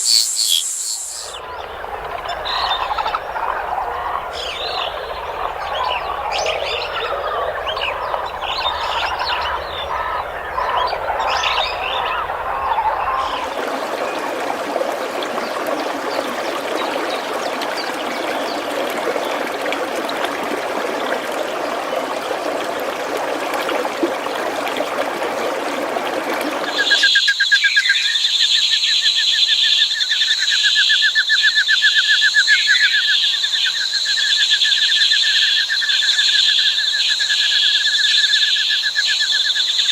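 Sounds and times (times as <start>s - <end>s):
high pulsing trill: 0.0s - 1.4s
chorus of chirping calls: 0.0s - 13.5s
dense hissing chorus: 0.0s - 13.5s.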